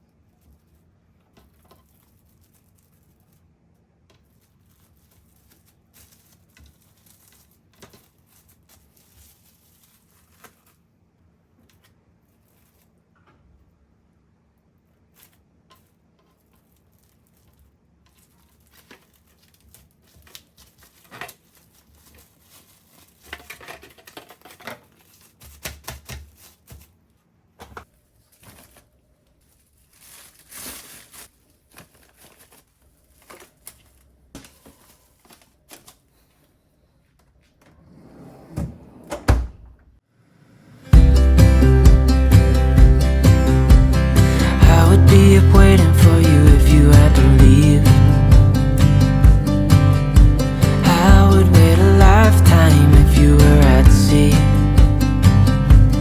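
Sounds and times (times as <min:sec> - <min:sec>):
packaging rustling: 0:00.4 - 0:03.5, 0:04.2 - 0:10.9, 0:11.7 - 0:13.0, 0:15.1 - 0:36.6.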